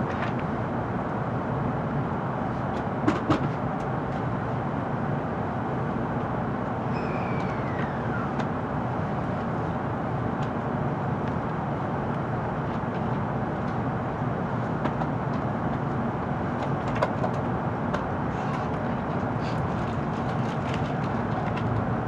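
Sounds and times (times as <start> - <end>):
train cabin rumble: 6.6 - 9.6.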